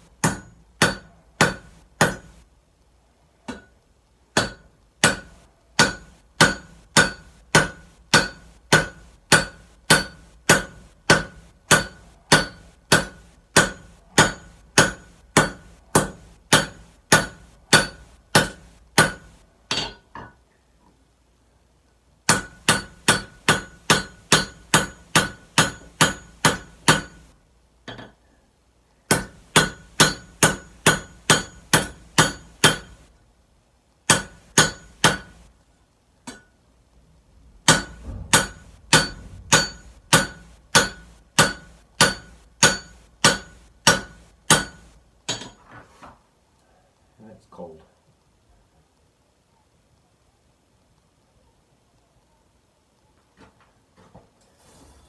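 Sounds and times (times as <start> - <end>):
hammer striking metal on anvil: 0.2 - 2.4, 3.5 - 3.7, 4.4 - 20.3, 22.3 - 27.3, 29.1 - 33.0, 34.1 - 35.4, 36.2 - 36.5, 37.6 - 45.6.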